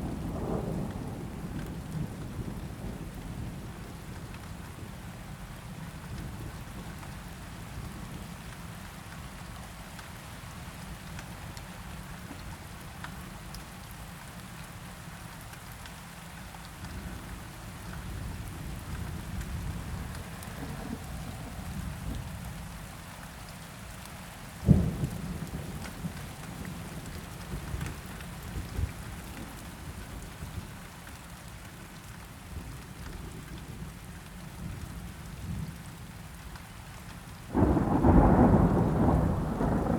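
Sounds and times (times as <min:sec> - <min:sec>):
low rolling thunder: 0:00.0 - 0:04.1, 0:18.2 - 0:22.5, 0:24.6 - 0:29.1, 0:37.5 - 0:39.9
steady rain: 0:00.0 - 0:39.9
sharp thunderclap: 0:37.5 - 0:39.9.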